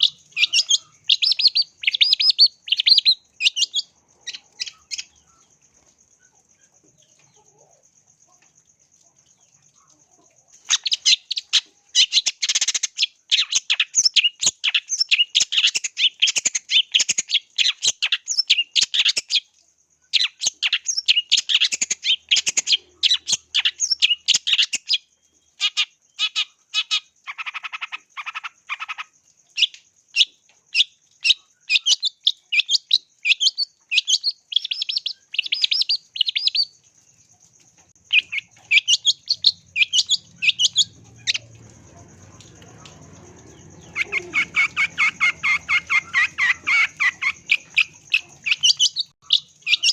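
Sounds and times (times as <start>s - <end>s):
lower fuller bird call: 38.1s - 49.9s.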